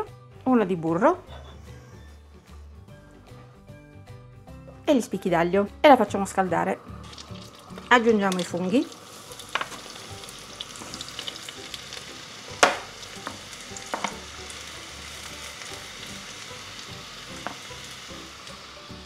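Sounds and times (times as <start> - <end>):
mushrooms sizzling in a frying pan: 6.9 - 19.0
spatula knocking on cutting board: 12.6 - 14.2.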